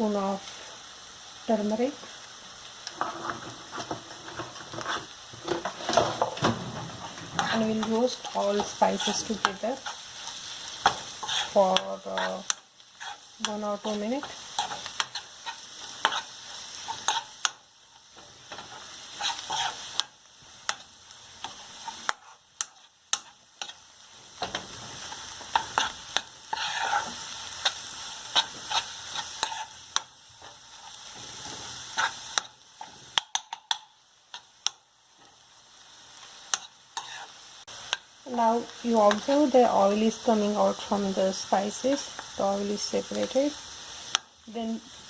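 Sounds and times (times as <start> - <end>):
spice paste sizzling in oil: 0.0 - 45.0
utensil scraping a pan: 2.9 - 17.3, 18.2 - 20.1, 24.4 - 29.8, 30.4 - 33.0, 36.5 - 37.4.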